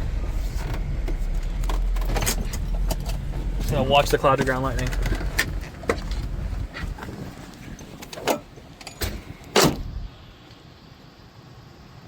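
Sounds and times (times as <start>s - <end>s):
low rumble: 0.0s - 8.0s, 9.8s - 10.3s
sharp clicks and knocks in car: 0.4s - 10.0s.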